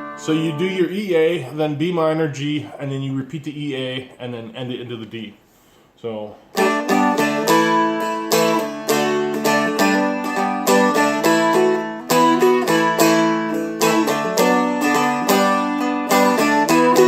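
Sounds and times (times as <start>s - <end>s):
strummed dulcimer with drone: 6.6s - 17.0s.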